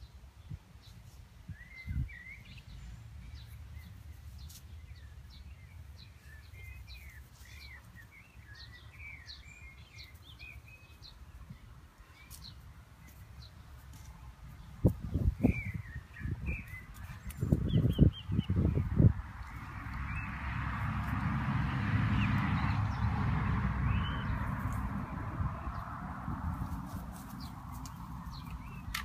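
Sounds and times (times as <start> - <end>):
birds chirping and calling: 1.6 - 20.4, 27.2 - 29.0.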